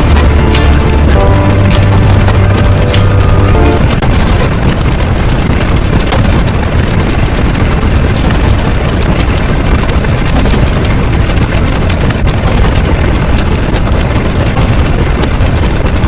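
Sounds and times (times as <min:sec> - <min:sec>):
music chord: 0:00.0 - 0:04.0
loud rumbling with crackles: 0:00.0 - 0:16.0.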